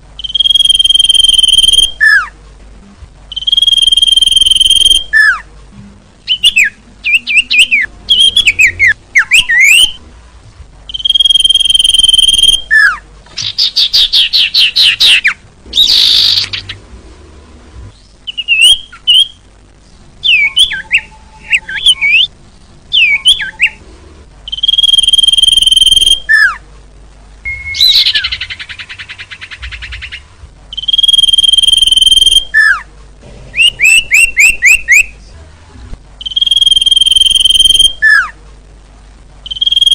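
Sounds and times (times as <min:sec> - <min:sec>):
bird chirps and trills: 0:00.2 - 0:02.3, 0:03.3 - 0:05.4, 0:06.2 - 0:10.0, 0:10.9 - 0:16.9, 0:18.0 - 0:22.3, 0:22.9 - 0:23.8, 0:24.5 - 0:26.6, 0:27.5 - 0:32.8, 0:33.5 - 0:35.2, 0:39.4 - 0:39.9
high whistled bird note: 0:27.4 - 0:30.2.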